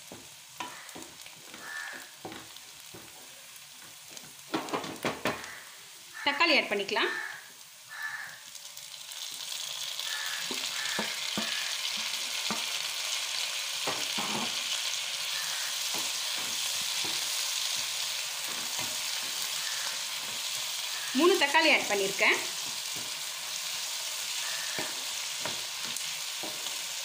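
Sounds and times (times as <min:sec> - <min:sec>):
tomatoes sizzling in oil: 0:00.0 - 0:27.0
spatula scraping pan: 0:10.1 - 0:12.7, 0:13.9 - 0:27.0.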